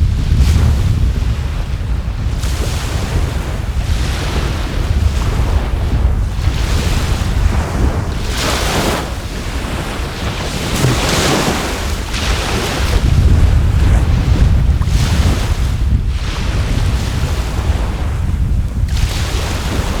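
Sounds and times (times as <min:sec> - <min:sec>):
wind buffeting microphone: 0:00.0 - 0:20.0
sea waves washing ashore: 0:00.5 - 0:20.0.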